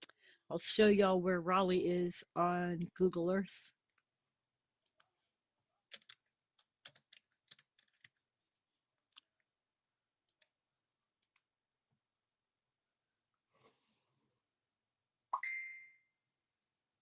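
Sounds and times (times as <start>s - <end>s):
keyboard and mouse clicking: 5.9s - 8.2s, 9.1s - 9.5s.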